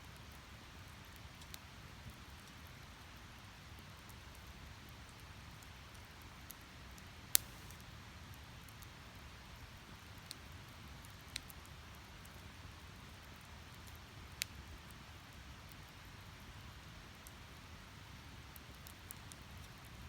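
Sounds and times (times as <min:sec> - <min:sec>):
firewood crackling: 0:05.5 - 0:08.0, 0:12.2 - 0:20.0
firewood popping: 0:07.3 - 0:07.8
rush of flames: 0:07.3 - 0:07.8.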